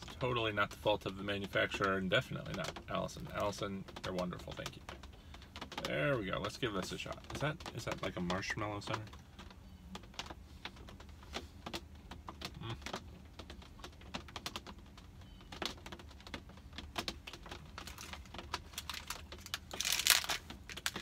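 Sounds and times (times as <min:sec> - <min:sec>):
chewing sticky candy: 0:12.4 - 0:13.1, 0:17.1 - 0:21.0
small crunches: 0:15.6 - 0:21.0.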